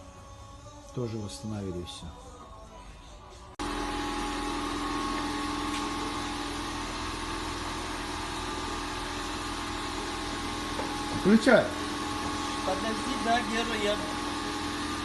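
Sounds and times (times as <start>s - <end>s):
engine humming steadily: 3.6s - 15.0s.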